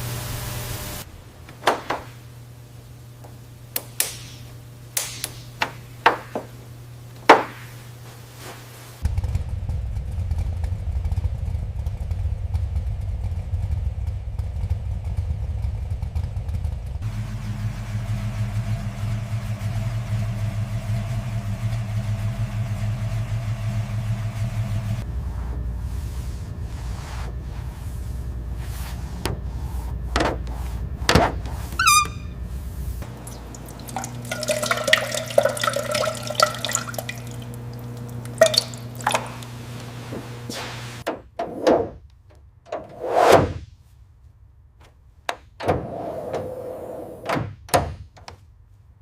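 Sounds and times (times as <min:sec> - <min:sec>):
car engine rumbling: 0:09.0 - 0:34.6.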